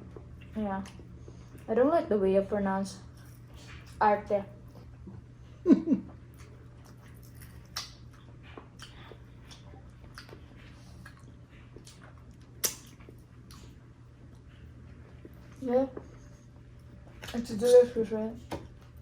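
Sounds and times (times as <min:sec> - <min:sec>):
chewing with mouth clicks: 0:03.0 - 0:04.0, 0:06.2 - 0:17.8.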